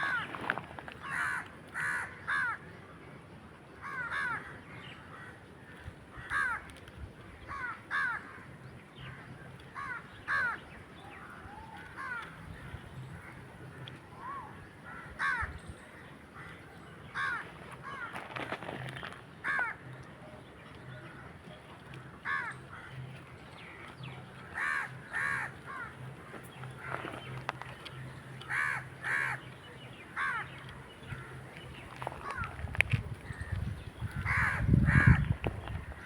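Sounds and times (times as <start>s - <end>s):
crows cawing: 0.0s - 0.3s, 1.0s - 2.6s, 3.8s - 5.4s, 6.1s - 6.7s, 7.5s - 8.5s, 9.8s - 10.6s, 12.0s - 12.4s, 13.8s - 15.5s, 17.2s - 18.1s, 19.4s - 19.9s, 22.2s - 23.1s, 24.5s - 27.1s, 28.4s - 29.5s, 30.2s - 31.5s, 34.1s - 36.0s.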